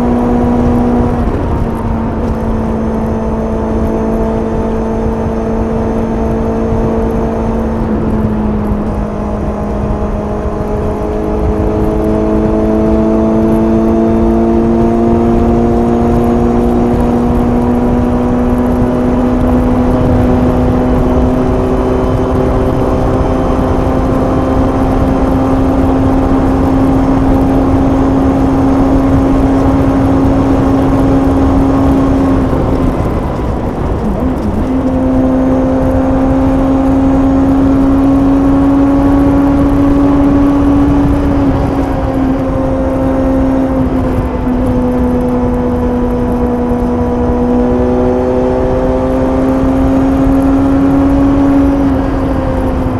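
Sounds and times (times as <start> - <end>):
motorcycle engine pulling steadily: 0.0 - 52.9
rushing wind noise: 0.0 - 52.9.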